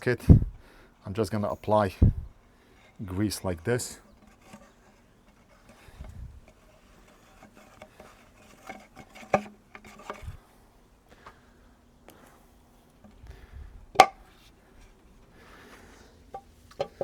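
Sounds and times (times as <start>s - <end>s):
dull thumps: 13.0s - 14.4s, 16.3s - 17.0s.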